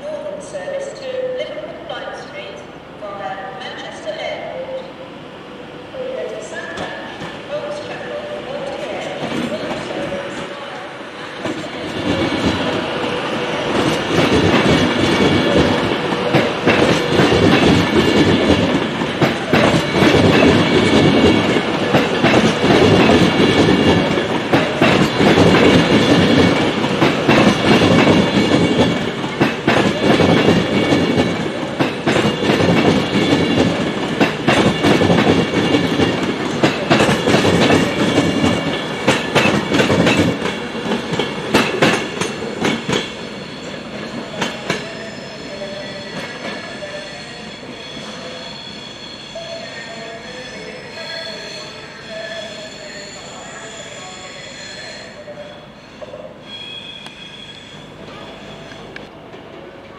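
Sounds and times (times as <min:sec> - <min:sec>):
train rumble: 0:00.0 - 0:46.8
train wheels clicking on rails: 0:06.2 - 0:45.0.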